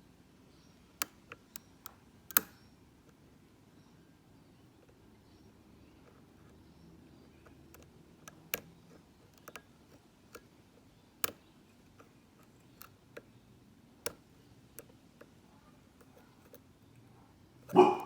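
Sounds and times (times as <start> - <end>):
lock pick clicking in padlock: 1.0 - 2.7, 11.2 - 11.5.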